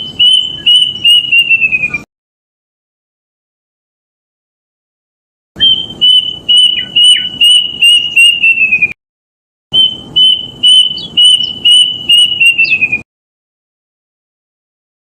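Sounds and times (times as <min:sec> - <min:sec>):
cuckoo whistled song: 0:00.0 - 0:02.1, 0:05.6 - 0:09.0, 0:09.7 - 0:13.1.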